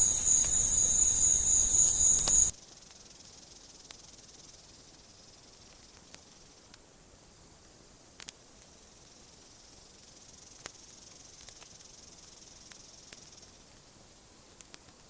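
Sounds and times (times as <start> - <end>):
insects shrilling: 0.0 - 2.5
small clicks: 0.0 - 3.0, 11.4 - 11.8, 14.5 - 15.0.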